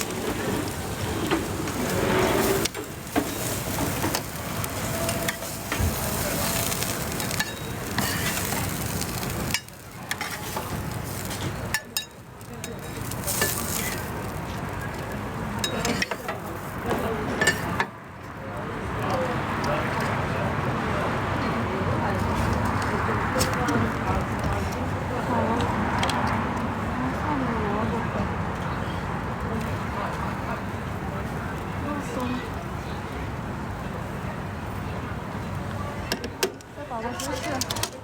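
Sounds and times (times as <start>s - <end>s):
pancake sizzling in oil: 0.0s - 16.6s.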